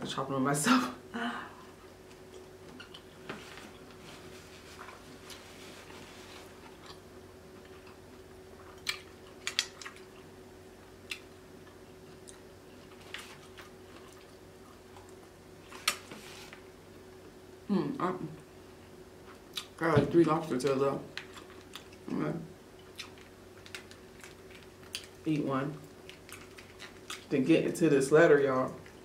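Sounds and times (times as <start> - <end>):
chewing food: 2.1 - 4.0, 4.8 - 10.4, 11.0 - 16.0, 21.1 - 22.1, 22.7 - 27.4.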